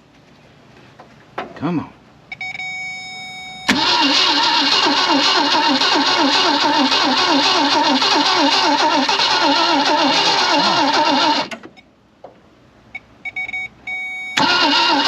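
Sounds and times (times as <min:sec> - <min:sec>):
engine cranking on starter: 0:03.7 - 0:11.7, 0:14.4 - 0:15.0.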